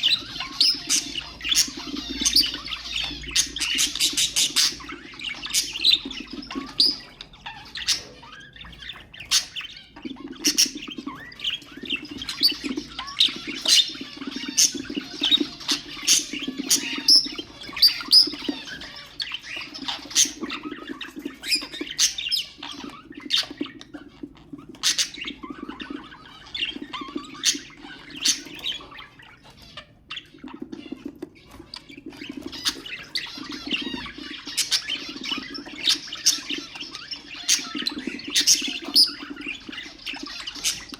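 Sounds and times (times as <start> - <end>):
budgerigars chirping: 0.0 - 40.9.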